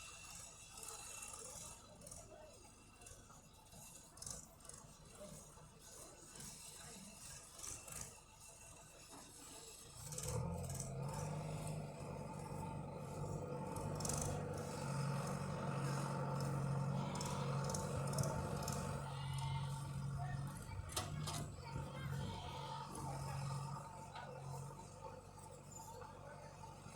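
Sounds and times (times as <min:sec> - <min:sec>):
tractor diesel engine running: 0:09.9 - 0:26.9
faint clicks and rattles: 0:15.2 - 0:22.2.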